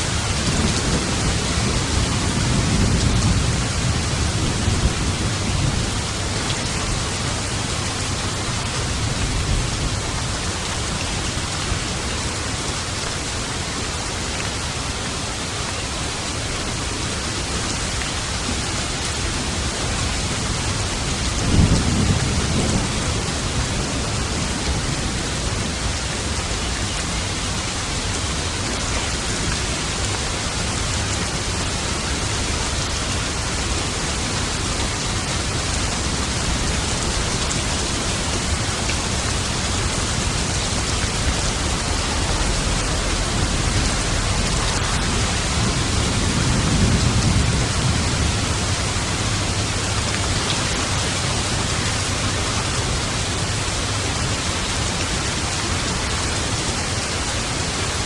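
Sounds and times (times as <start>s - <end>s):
heavy rain: 0.0s - 58.0s
thunder rumbling: 20.4s - 27.6s, 32.8s - 51.5s.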